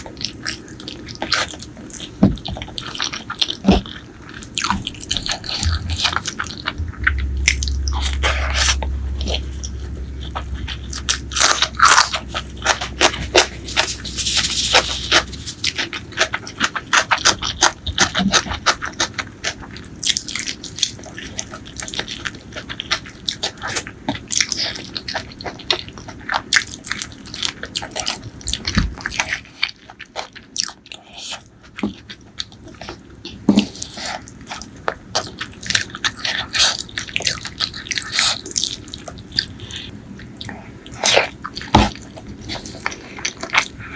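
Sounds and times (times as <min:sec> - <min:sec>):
chewing and mouth smacks: 0:00.0 - 0:43.9
low hum: 0:03.7 - 0:15.6, 0:39.6 - 0:43.9.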